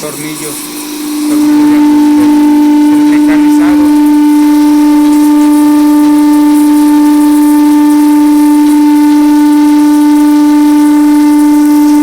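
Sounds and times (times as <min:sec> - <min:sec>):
faint hiss: 0:00.0 - 0:05.2
lathe whine: 0:00.0 - 0:12.0.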